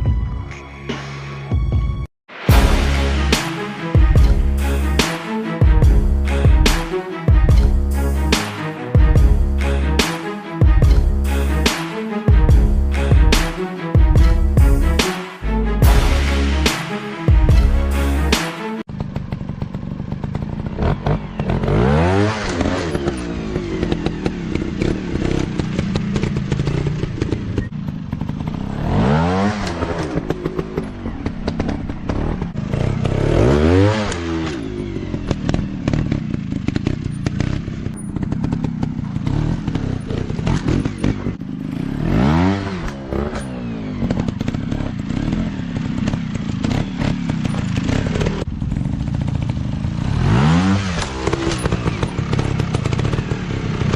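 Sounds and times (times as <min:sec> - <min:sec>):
dirt bike engine revving: 0:17.5 - 0:53.9.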